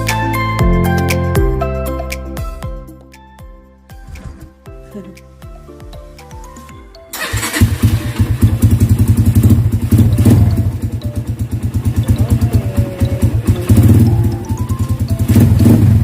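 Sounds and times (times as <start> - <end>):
motorcycle engine running: 7.2 - 16.0.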